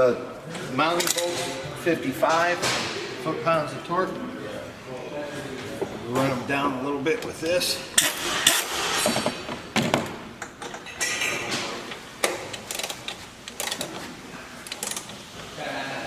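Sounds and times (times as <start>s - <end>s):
metal tools clinking and knocking: 10.6s - 11.6s.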